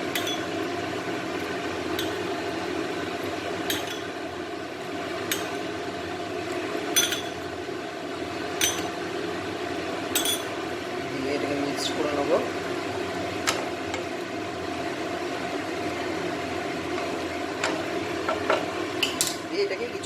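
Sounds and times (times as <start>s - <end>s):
steady background hum: 0.0s - 20.0s
spoon clinking against pot: 0.1s - 0.5s, 2.0s - 2.2s, 3.7s - 4.1s, 7.0s - 7.4s, 8.6s - 8.9s, 10.1s - 10.5s.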